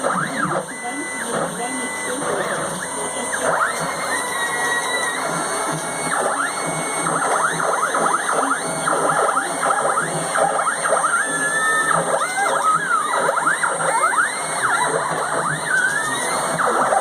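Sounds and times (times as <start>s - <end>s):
stepper motors whining: 0.0s - 17.0s.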